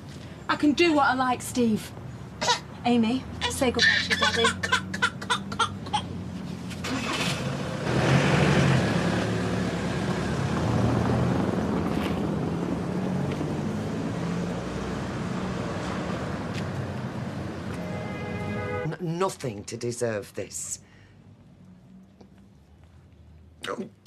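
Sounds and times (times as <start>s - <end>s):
car engine pulling away: 6.6s - 17.8s.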